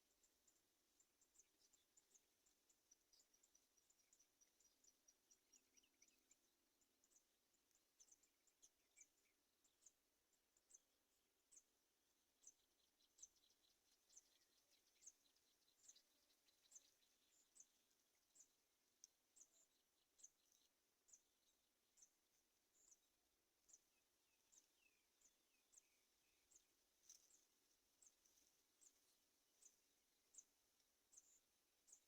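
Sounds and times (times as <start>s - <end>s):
faint high-pitched bird chirps: 0.0s - 32.0s
faint rapid ticks: 13.1s - 21.3s, 26.4s - 32.0s.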